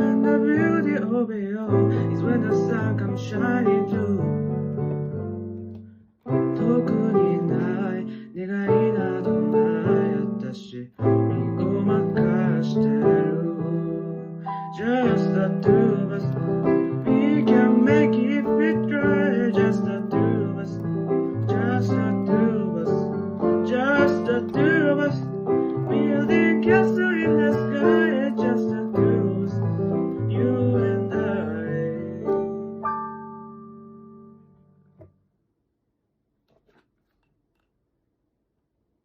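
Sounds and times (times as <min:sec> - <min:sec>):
electric piano chords: 0:00.0 - 0:35.0
pitch-bending keyboard melody: 0:11.0 - 0:34.9.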